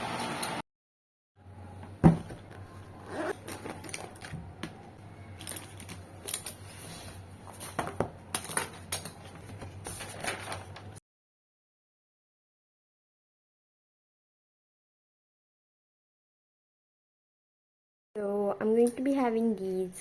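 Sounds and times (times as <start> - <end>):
small objects clattering: 5.3 - 6.7.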